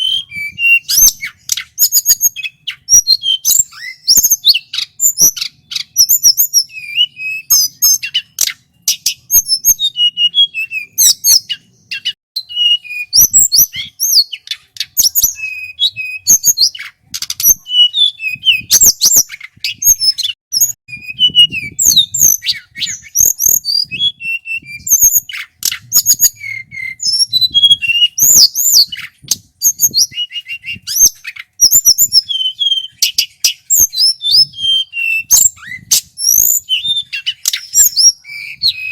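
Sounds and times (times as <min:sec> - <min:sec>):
bird singing whistled trills: 0:00.0 - 0:38.9
sharp bird clicks: 0:00.9 - 0:06.4, 0:13.5 - 0:15.6, 0:16.5 - 0:17.7, 0:25.0 - 0:26.6, 0:35.3 - 0:38.9.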